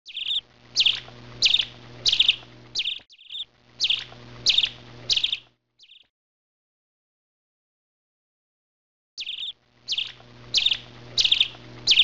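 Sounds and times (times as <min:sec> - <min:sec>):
faint low hum: 0:00.1 - 0:06.0, 0:09.2 - 0:12.0
songbird chirping: 0:00.1 - 0:06.1, 0:09.2 - 0:12.0.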